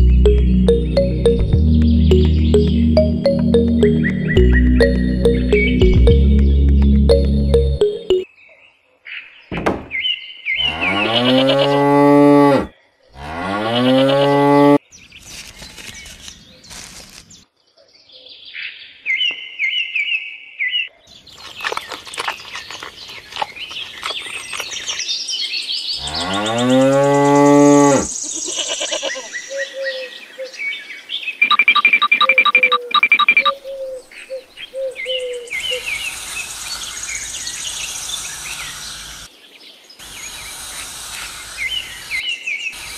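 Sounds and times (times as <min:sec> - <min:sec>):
high bird chirps: 0:00.0 - 0:08.3, 0:31.4 - 0:39.0
cow mooing: 0:10.6 - 0:14.8, 0:26.0 - 0:29.0.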